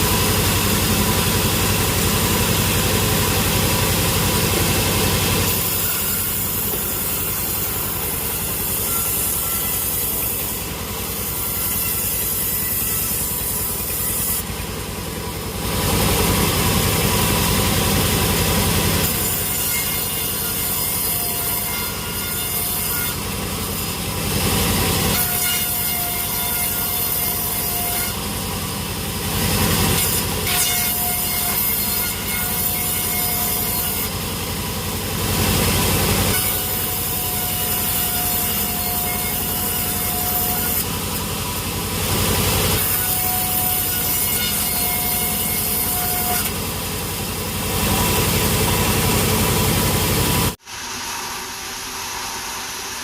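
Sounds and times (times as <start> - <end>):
machinery running: 0.0 - 22.1, 46.5 - 53.0
sawmill saw cutting log: 0.0 - 53.0.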